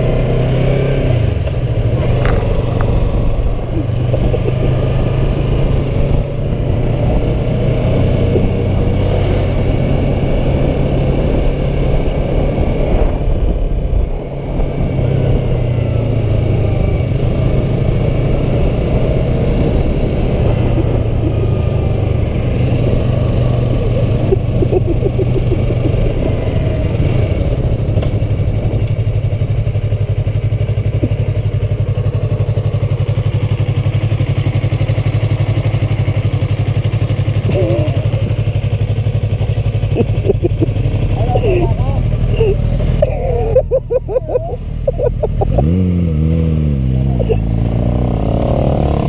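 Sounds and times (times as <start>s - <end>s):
motorcycle engine cruising: 0.0s - 49.0s
road and wind noise: 0.0s - 49.0s.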